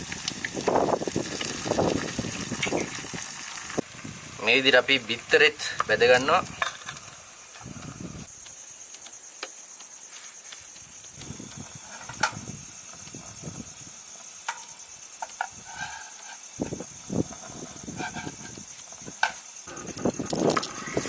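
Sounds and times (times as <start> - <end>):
eggs frying: 0.0 - 8.3.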